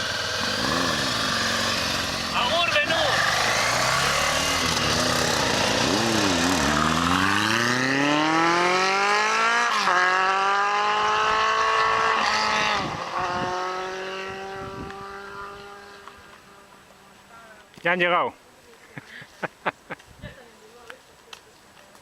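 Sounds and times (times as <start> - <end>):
motorcycle engine accelerating: 0.0 - 17.1.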